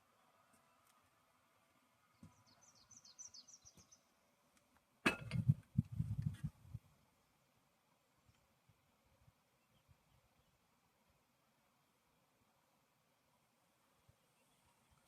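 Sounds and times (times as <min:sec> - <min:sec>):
small bird chirping: 0:02.1 - 0:04.1.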